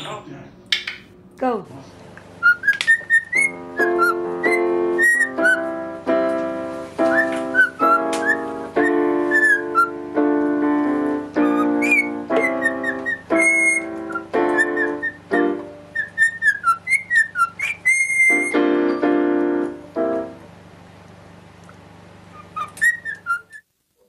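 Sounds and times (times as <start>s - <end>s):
piano chords: 0.0s - 23.5s
parrot whistling: 2.4s - 5.7s, 7.0s - 10.0s, 11.4s - 18.6s, 22.3s - 23.7s.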